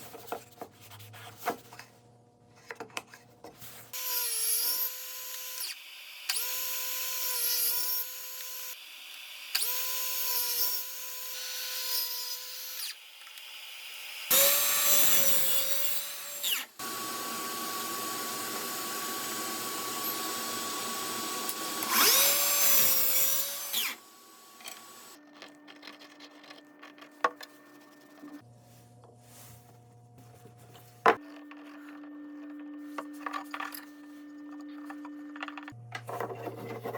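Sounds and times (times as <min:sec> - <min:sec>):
electric drill whining: 0:09.5 - 0:25.2.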